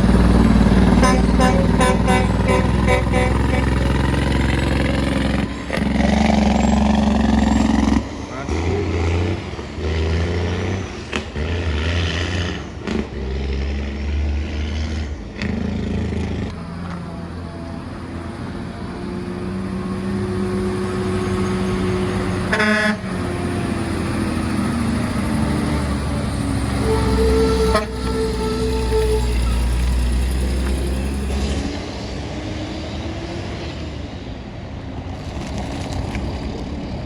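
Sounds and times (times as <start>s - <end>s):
truck horn toot: 0.0s - 6.7s, 21.0s - 24.5s, 25.1s - 31.6s
heavy truck engine running: 0.0s - 33.3s.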